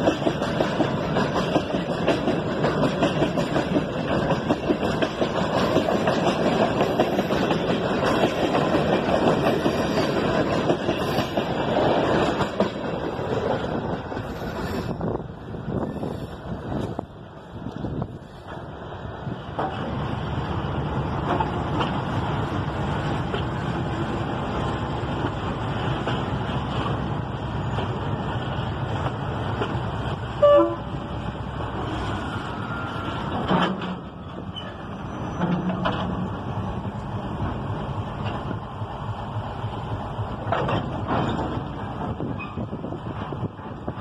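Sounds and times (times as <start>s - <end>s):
train wheels rumbling on rail: 0.0s - 44.0s
train horn toot: 30.4s - 31.1s.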